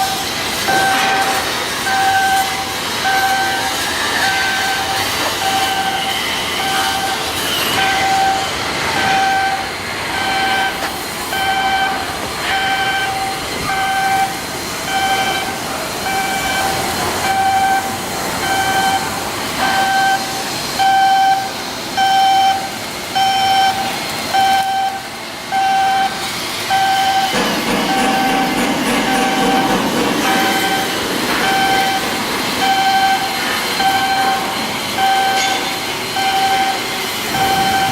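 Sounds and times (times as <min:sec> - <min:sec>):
electronic warning beeps: 0:00.0 - 0:37.9
yard machinery noise: 0:00.0 - 0:37.9.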